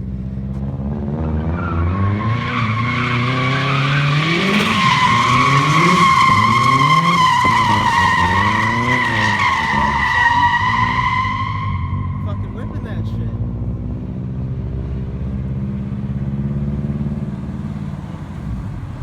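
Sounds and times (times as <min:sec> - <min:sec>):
car engine revving: 0:00.0 - 0:19.0
tyres squealing: 0:01.6 - 0:12.9.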